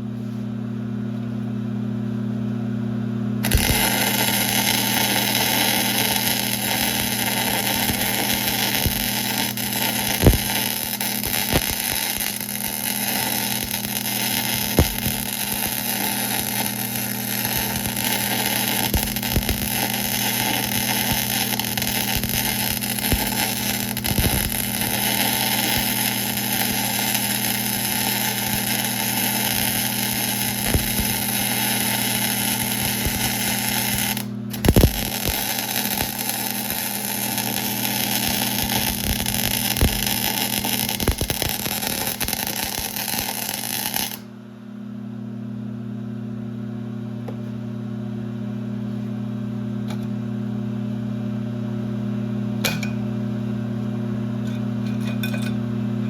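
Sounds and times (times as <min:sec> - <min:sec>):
hissing and clicking cutting: 0:03.4 - 0:44.2.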